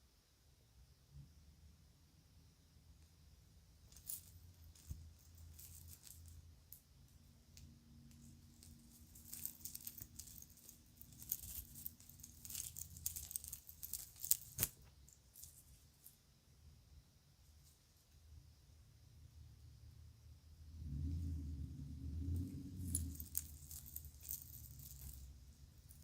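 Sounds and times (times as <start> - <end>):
jewelry clicking and jingling: 3.8 - 16.2, 22.2 - 26.0.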